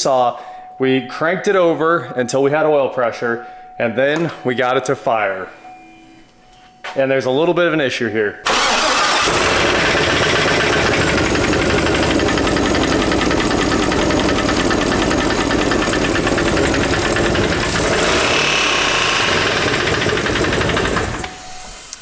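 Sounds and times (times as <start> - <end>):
engine running with rod knock: 10.2 - 21.3.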